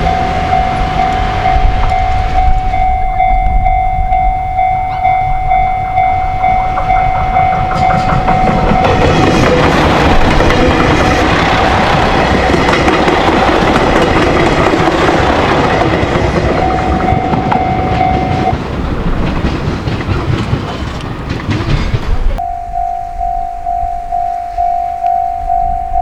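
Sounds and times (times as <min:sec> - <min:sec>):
crossing warning bell ringing: 0:00.0 - 0:26.0
train passing over crossing: 0:00.0 - 0:26.0.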